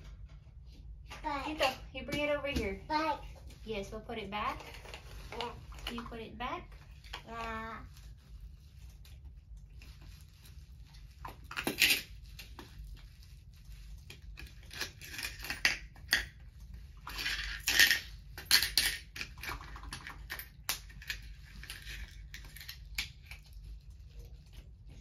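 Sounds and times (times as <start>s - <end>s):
small objects clicking and tapping: 14.0s - 23.8s
objects clattering: 14.6s - 22.9s.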